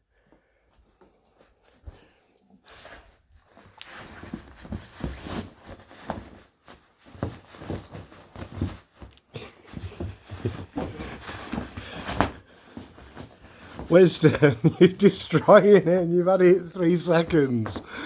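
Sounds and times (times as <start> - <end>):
puppy scratching fabric: 2.7 - 14.0.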